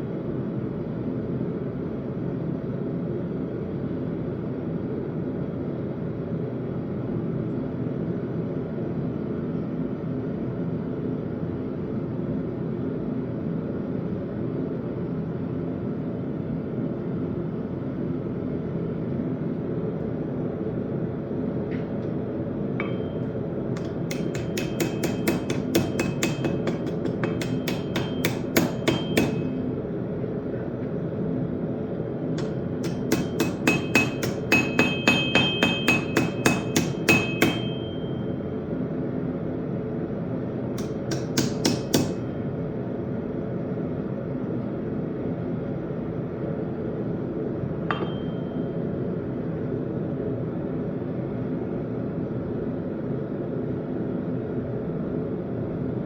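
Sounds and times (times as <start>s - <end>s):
anvil ringing: 22.8s - 29.6s, 32.4s - 38.4s, 40.8s - 42.4s, 47.9s - 48.8s
hammer striking steel on anvil: 22.8s - 29.7s, 32.4s - 38.4s, 40.8s - 42.4s, 47.9s - 48.8s.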